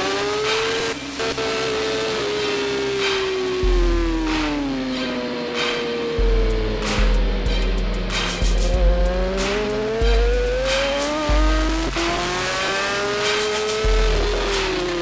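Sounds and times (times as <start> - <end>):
motorcycle engine accelerating: 0.0 - 15.0
music with heavy bass beat: 3.0 - 15.0.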